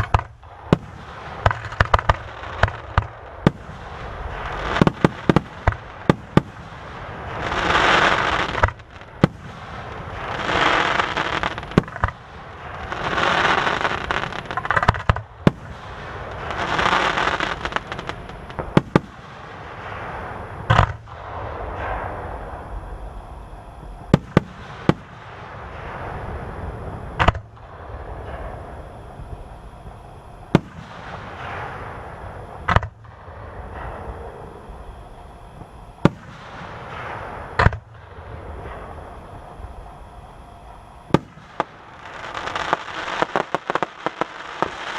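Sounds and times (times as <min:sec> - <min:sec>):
firework shells bursting: 0:00.0 - 0:22.2, 0:41.0 - 0:44.9
fireworks hissing: 0:00.0 - 0:44.9.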